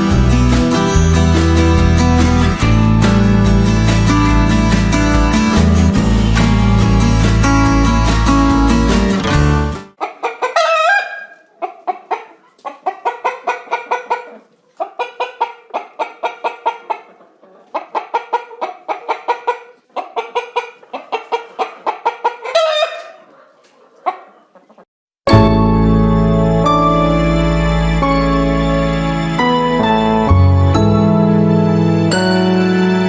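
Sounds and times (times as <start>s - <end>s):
chickens clucking: 10.0s - 24.9s.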